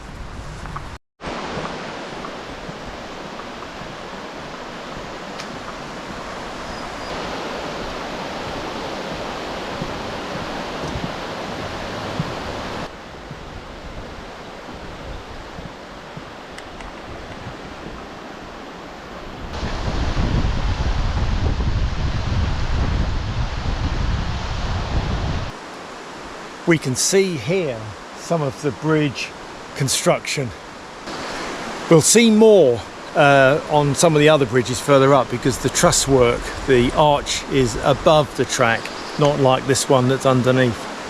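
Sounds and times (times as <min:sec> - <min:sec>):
wind buffeting microphone: 0:00.0 - 0:25.6
river rushing: 0:01.2 - 0:41.0.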